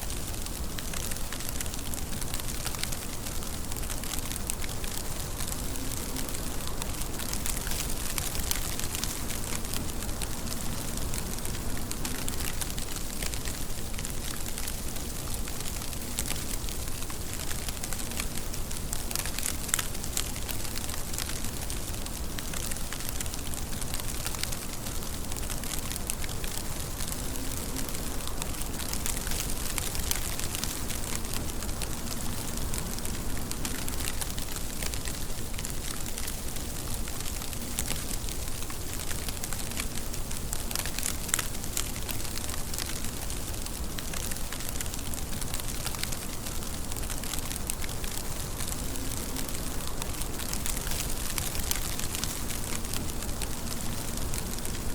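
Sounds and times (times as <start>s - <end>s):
raindrops pattering: 0.0s - 54.9s
steady rain falling: 0.0s - 54.9s.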